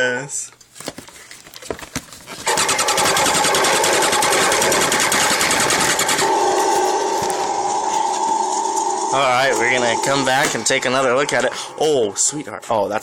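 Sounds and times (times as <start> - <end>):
toy truck motor whirring: 2.5 - 7.4.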